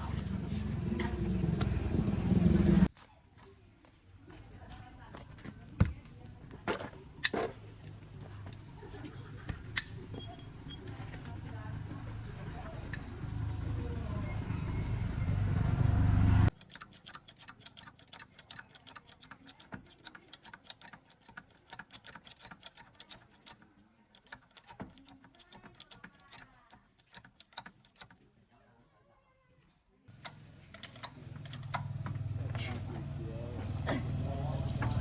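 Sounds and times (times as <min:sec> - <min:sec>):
loud rumbling machine: 0:00.0 - 0:02.9, 0:13.0 - 0:16.5
tools clicking on metal parts: 0:09.7 - 0:10.4, 0:16.5 - 0:28.2, 0:30.1 - 0:32.0.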